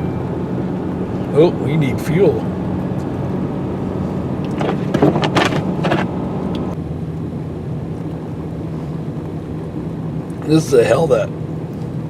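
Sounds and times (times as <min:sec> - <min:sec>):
truck diesel engine droning: 0:00.0 - 0:07.7
faint whine: 0:00.0 - 0:12.0.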